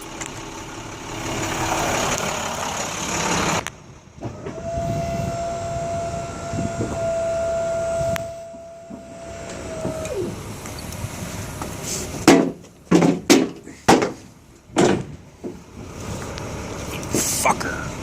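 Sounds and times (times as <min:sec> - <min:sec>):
hydraulic pump motor whine: 0:04.2 - 0:11.7.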